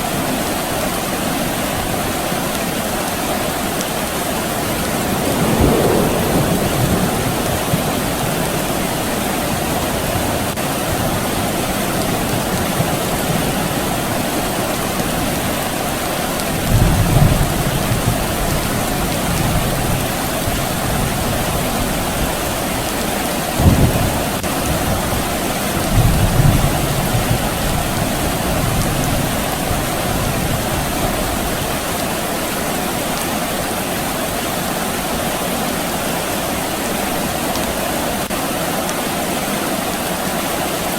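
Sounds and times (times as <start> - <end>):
soft rain falling: 0.0 - 40.9
distant thunder rumbles: 4.5 - 31.8.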